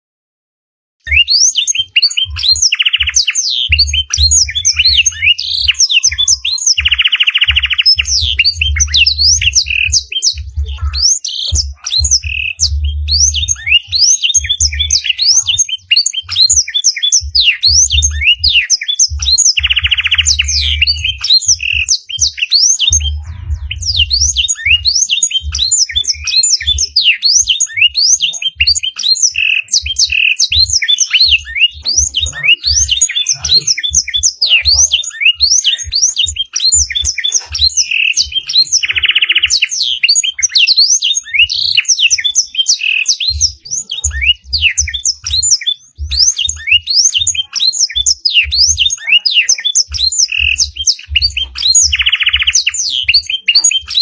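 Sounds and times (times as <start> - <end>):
canary singing: 1.0 - 54.0
short low thumps: 7.5 - 15.0, 17.2 - 27.0.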